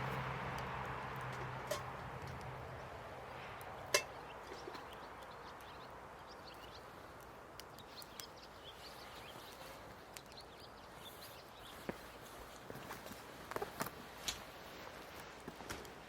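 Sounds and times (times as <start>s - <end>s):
small wood fire crackling: 0.0s - 16.0s
sharp pops and clicks: 6.6s - 8.4s.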